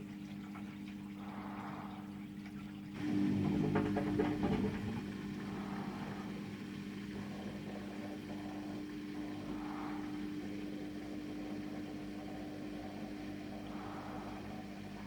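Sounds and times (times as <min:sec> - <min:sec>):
washing machine drum humming: 0:00.0 - 0:15.0.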